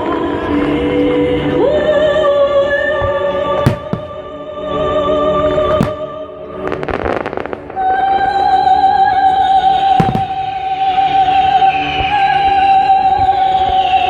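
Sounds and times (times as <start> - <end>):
fireworks crackling: 6.6 - 8.2.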